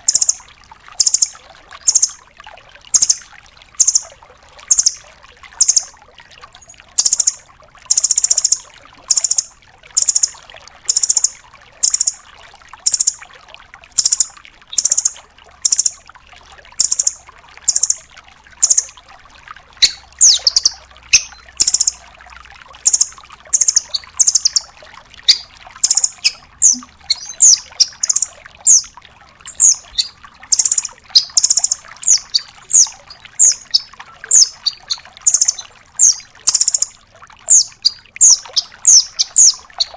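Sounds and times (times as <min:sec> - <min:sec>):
bird calling sharp high notes: 0:19.8 - 0:22.0, 0:25.3 - 0:28.9.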